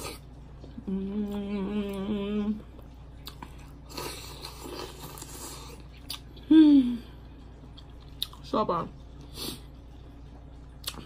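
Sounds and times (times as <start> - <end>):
person humming: 0.8 - 2.6, 6.4 - 7.1
person chewing: 2.7 - 6.5, 7.6 - 8.4, 10.8 - 11.0.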